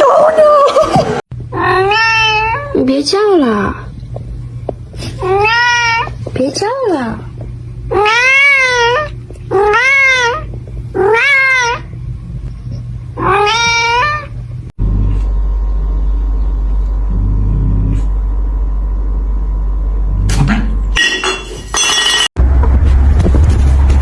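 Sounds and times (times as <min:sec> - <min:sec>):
steady low hum: 0:01.3 - 0:24.0
cat meowing loudly: 0:01.6 - 0:02.8, 0:05.2 - 0:06.1, 0:07.9 - 0:11.8, 0:13.2 - 0:14.3.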